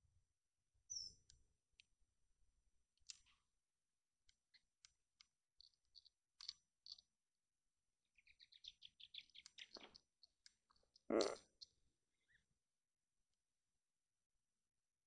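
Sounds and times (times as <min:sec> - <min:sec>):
faint small bird chirping: 0:00.8 - 0:01.9, 0:02.9 - 0:03.6, 0:04.2 - 0:12.6.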